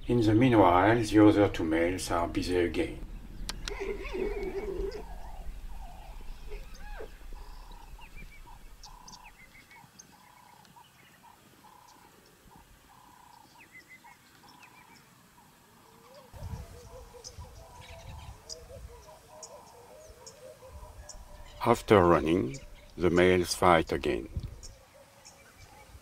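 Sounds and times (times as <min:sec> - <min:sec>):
low rumble: 0:00.0 - 0:09.6
birds chirping: 0:00.0 - 0:26.0.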